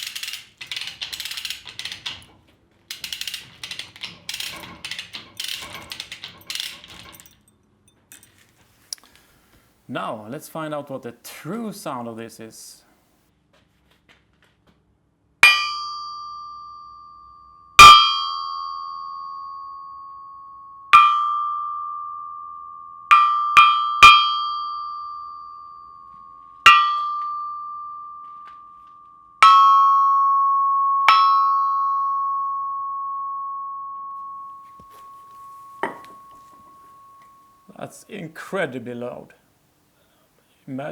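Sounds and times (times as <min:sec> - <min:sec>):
hammer striking anvil ringing: 0:15.4 - 0:19.9, 0:21.0 - 0:28.7, 0:29.4 - 0:37.7.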